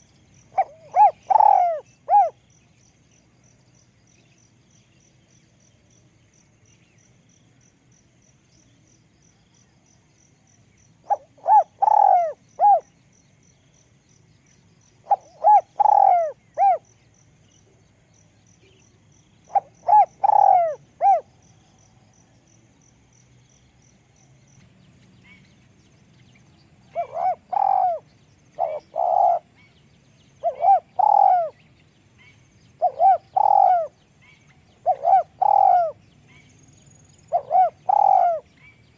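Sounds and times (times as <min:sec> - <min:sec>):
dove cooing: 0:00.0 - 0:02.4, 0:11.0 - 0:12.9, 0:15.0 - 0:16.8, 0:19.5 - 0:21.3, 0:26.9 - 0:29.7, 0:30.4 - 0:31.6, 0:32.8 - 0:36.4, 0:37.2 - 0:38.5.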